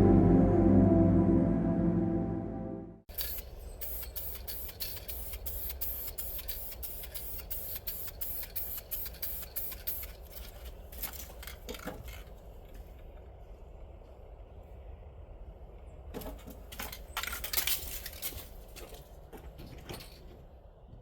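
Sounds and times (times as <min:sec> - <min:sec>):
low steady hum: 0:00.0 - 0:04.6.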